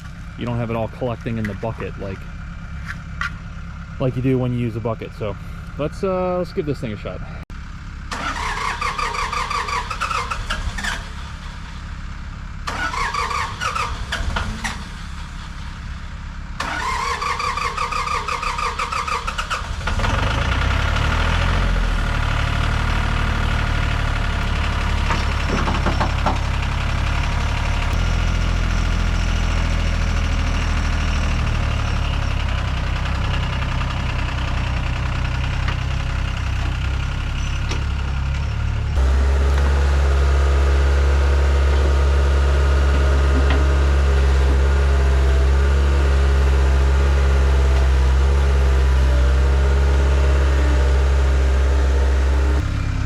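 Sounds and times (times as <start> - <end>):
engine running steadily: 0.0 - 53.0
engine starter cranking: 8.1 - 11.1, 12.7 - 14.9, 16.6 - 20.3.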